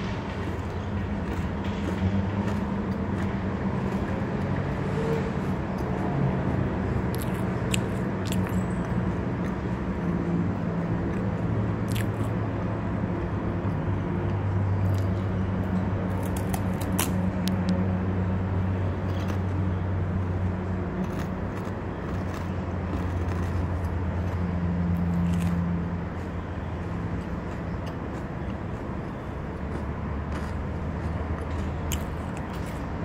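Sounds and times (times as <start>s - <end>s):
low mechanical hum: 0.0s - 33.0s
crunchy snack being chewed: 0.5s - 4.6s, 7.1s - 9.6s, 11.0s - 12.4s, 14.8s - 15.2s, 16.1s - 17.8s, 19.0s - 33.0s.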